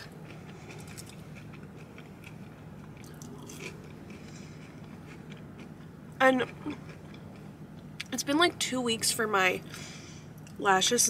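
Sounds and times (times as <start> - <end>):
person chewing food: 0.0 - 8.1
steady low hum: 0.0 - 11.0.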